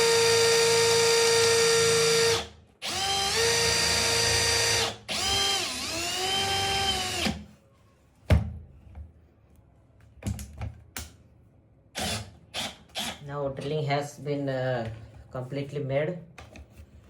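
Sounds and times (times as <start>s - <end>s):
cordless drill whining: 0.0s - 7.4s.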